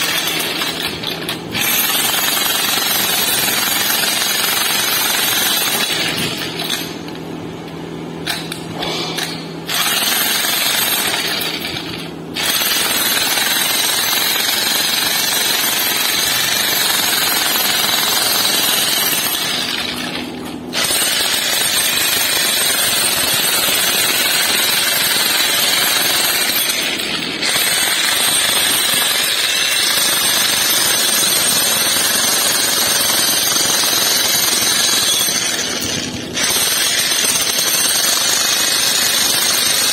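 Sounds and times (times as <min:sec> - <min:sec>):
power tool hammering: 0:00.0 - 0:39.9.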